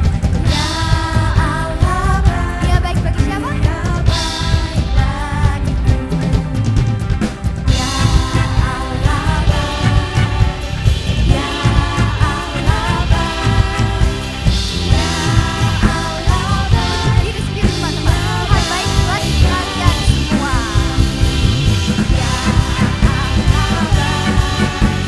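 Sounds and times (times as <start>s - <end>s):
bass: 0.0s - 25.0s
drum kit: 0.0s - 25.0s
electric guitars: 0.0s - 25.0s
people singing: 0.0s - 25.0s.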